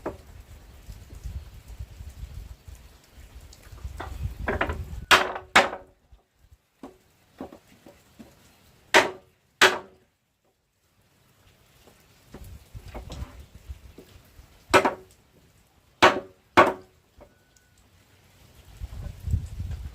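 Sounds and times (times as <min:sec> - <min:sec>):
tool striking wood: 0:04.5 - 0:05.9, 0:09.0 - 0:10.0, 0:14.7 - 0:15.0, 0:16.0 - 0:16.9.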